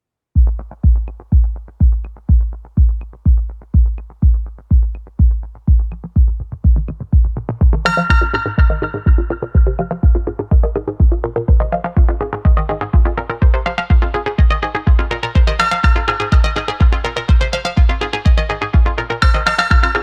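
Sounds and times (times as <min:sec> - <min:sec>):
heavy kick drum: 0:00.4 - 0:20.0
bright synth line: 0:07.9 - 0:10.3.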